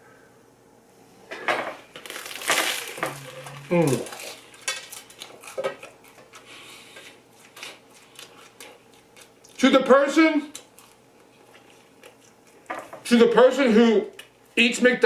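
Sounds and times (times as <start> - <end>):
short low hum: 3.0 - 4.0.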